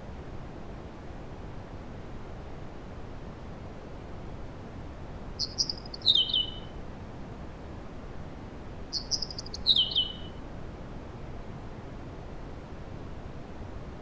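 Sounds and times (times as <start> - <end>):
low background hiss: 0.0 - 14.0
small bird singing: 5.4 - 6.7, 8.9 - 10.4.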